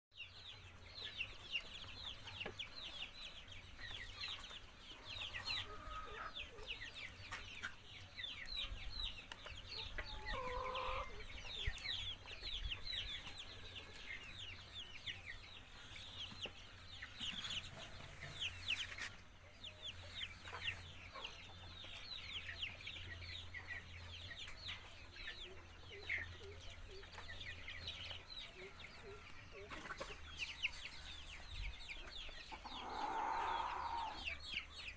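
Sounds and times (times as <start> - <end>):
poultry calling: 5.2 - 6.7, 9.8 - 11.8, 31.9 - 34.7.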